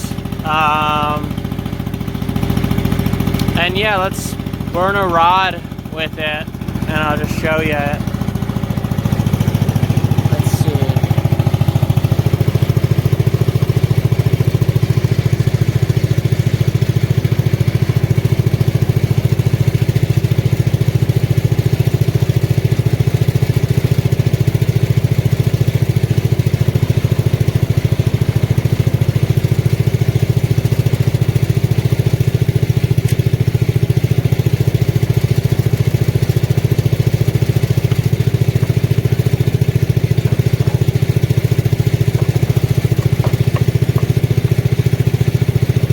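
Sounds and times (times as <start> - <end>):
welder engine running steadily: 0.0 - 45.9.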